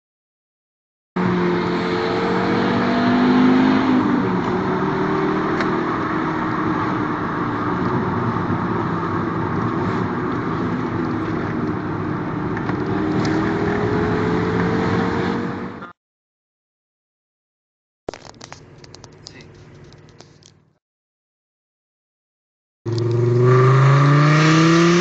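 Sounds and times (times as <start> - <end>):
loud car engine running: 1.2 - 15.9.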